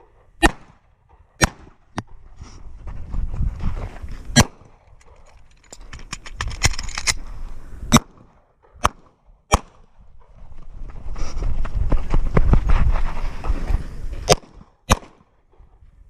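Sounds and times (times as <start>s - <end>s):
small clicks and rustling: 4.9s - 7.2s.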